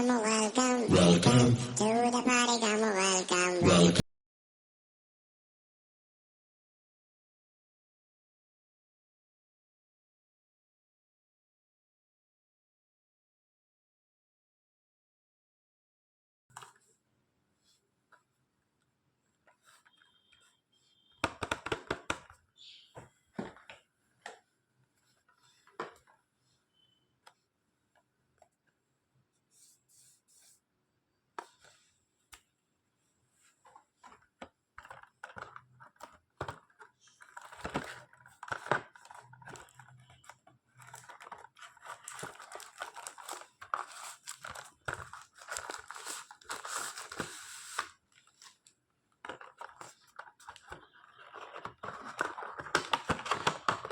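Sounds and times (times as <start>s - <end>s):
packaging taps and clicks: 21.2s - 22.4s, 34.0s - 48.5s, 49.2s - 53.9s
wrapping rustling and tearing: 34.8s - 53.9s.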